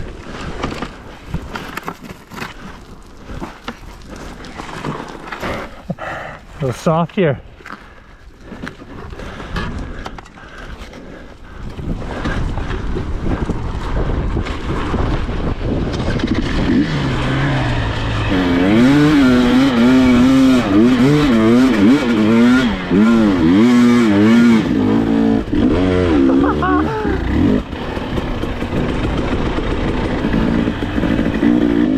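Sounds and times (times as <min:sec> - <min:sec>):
dirt bike engine revving: 0:13.7 - 0:31.9.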